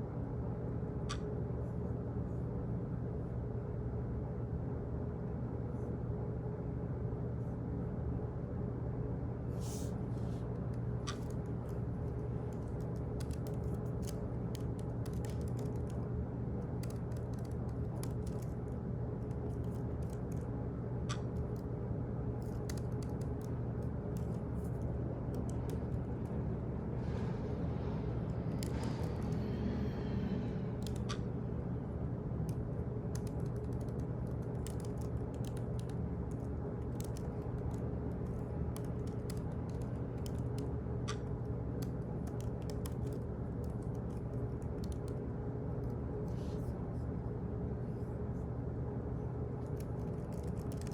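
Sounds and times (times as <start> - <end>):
low hum of room equipment: 0.0 - 50.9
keyboard typing clicks: 11.1 - 16.0, 16.6 - 21.7, 22.4 - 26.2, 30.8 - 31.3, 32.5 - 45.2, 49.6 - 50.9.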